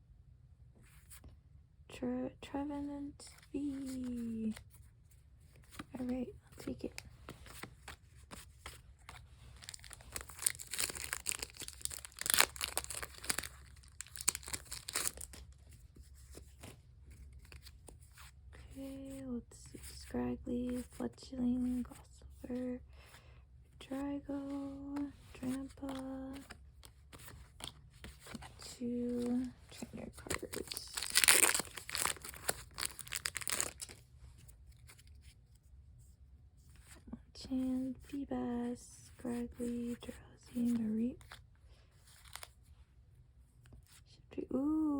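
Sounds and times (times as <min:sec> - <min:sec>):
foil wrapper crinkling and tearing: 0:09.6 - 0:15.5, 0:30.3 - 0:34.0.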